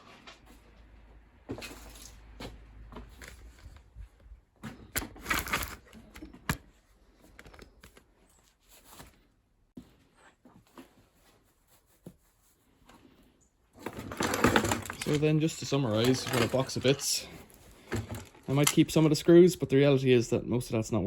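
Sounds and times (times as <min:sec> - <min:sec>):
scrap metal parts clattering: 0:05.0 - 0:06.0, 0:13.8 - 0:19.1.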